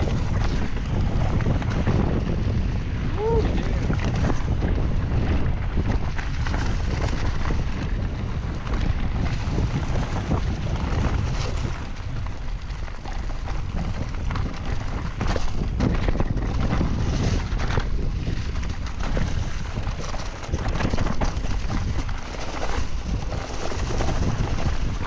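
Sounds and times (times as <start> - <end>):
bike knocking and rattling: 0.0 - 3.0, 3.8 - 25.0
wind buffeting microphone: 0.0 - 25.0.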